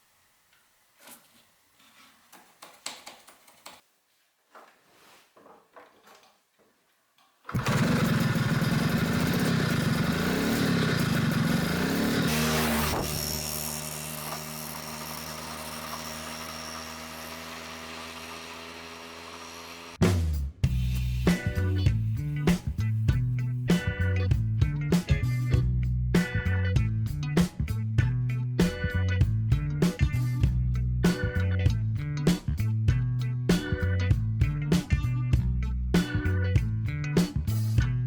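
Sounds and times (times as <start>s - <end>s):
moped engine starting and idling: 7.5s - 20.0s.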